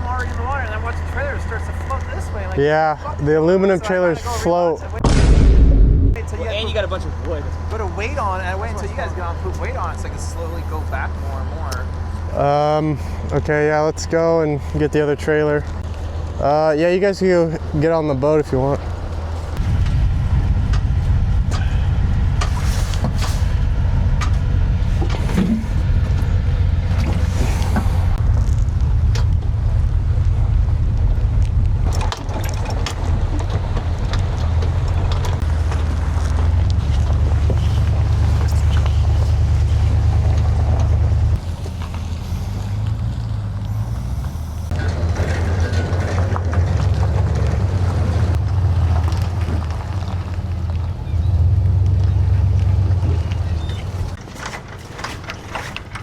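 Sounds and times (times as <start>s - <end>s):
vehicle engine rumble: 0.0s - 56.0s
knocks and rattles: 31.6s - 39.5s.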